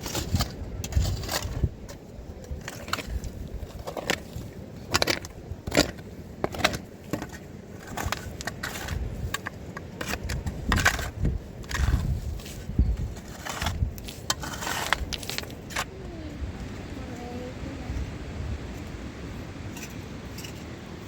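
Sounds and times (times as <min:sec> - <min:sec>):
crunching and scraping: 0:00.0 - 0:16.0.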